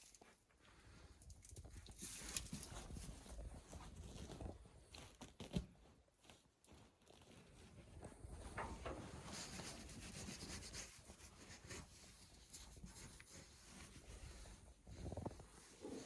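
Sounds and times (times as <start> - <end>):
faint rustling and scraping: 0.0 - 16.0.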